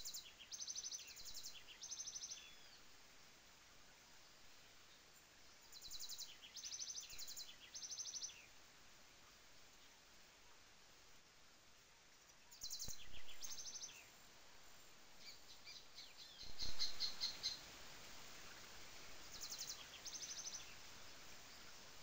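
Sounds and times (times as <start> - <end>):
songbird singing: 0.0 - 22.0
trickling water: 15.8 - 22.0.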